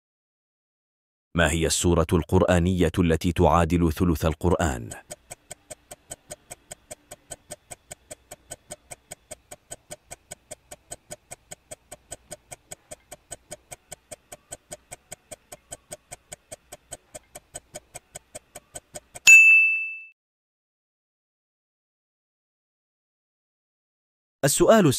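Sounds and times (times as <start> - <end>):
timer ticking clicks: 1.7 - 19.4.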